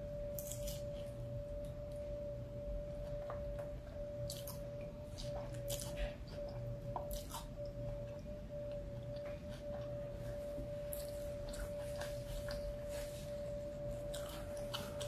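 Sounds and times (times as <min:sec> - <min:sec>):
faint whine-like tone: 0:00.0 - 0:15.0
wet chewing sounds: 0:03.1 - 0:10.1, 0:10.8 - 0:15.0.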